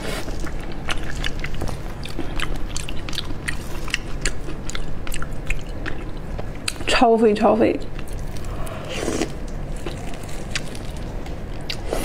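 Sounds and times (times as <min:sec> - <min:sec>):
chewing with mouth clicks: 0:00.0 - 0:06.9, 0:07.8 - 0:12.0.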